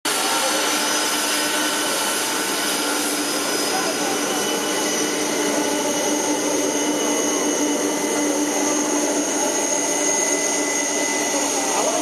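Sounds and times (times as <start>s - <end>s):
jet engine rushing whine: 0.1s - 12.0s.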